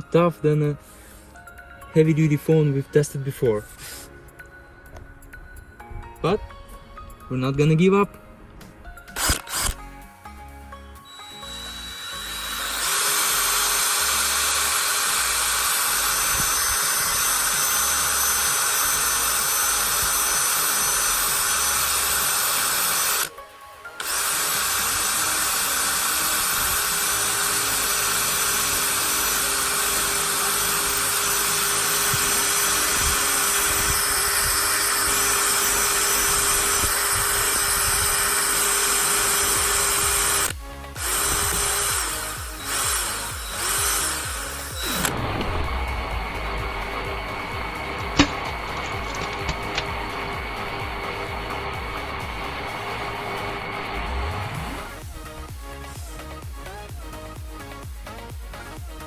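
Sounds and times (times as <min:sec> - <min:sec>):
cordless drill grinding into screen: 0:09.1 - 0:09.9, 0:11.1 - 0:23.3, 0:24.0 - 0:55.0.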